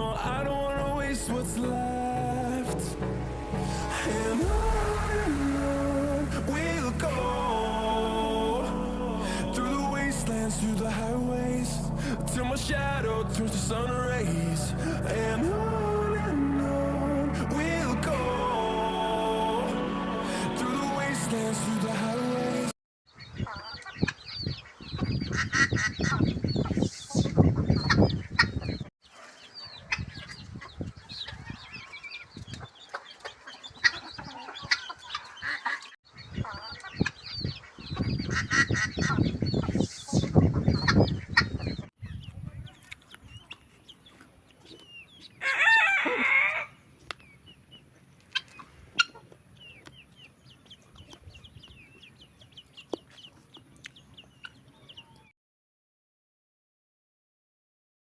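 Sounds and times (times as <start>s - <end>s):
chicks peeping: 23.1s - 55.3s
hen clucking: 29.8s - 55.3s.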